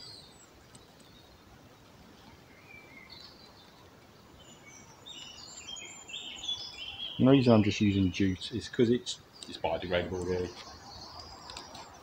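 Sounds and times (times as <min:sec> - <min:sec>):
faint woodland ambience: 0:00.0 - 0:12.0
high bird chirps: 0:04.3 - 0:12.0.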